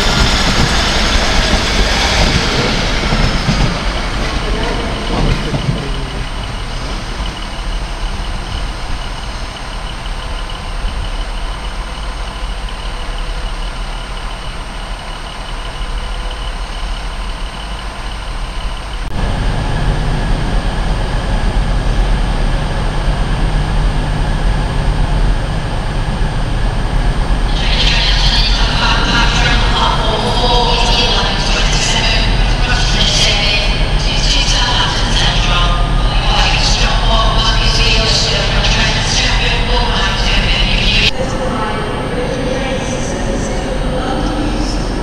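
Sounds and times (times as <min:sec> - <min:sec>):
diesel train engine: 0:00.0 - 0:45.0
bright busy noise: 0:25.0 - 0:45.0.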